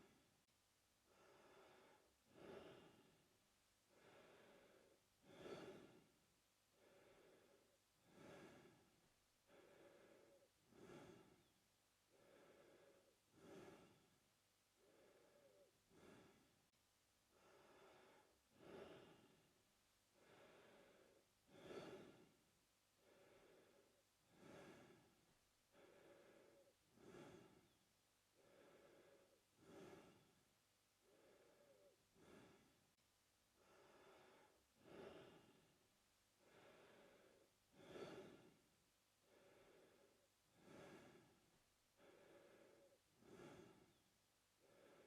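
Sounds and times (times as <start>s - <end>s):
man breathing through mouth: 6.8s - 11.5s, 12.1s - 14.1s, 14.8s - 16.5s, 20.2s - 22.4s, 23.0s - 27.8s, 28.4s - 30.4s, 31.0s - 32.8s, 36.4s - 38.6s, 39.3s - 44.0s.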